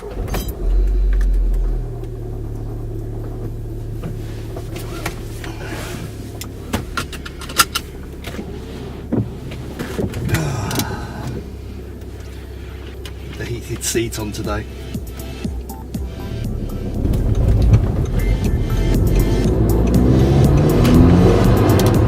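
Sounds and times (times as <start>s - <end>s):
car engine humming: 0.0s - 22.0s
sharp clicks and knocks: 14.9s - 22.0s.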